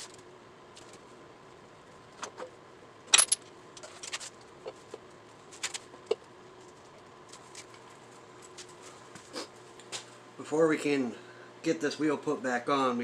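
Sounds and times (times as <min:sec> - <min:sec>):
metal tools clinking: 0:03.1 - 0:03.4.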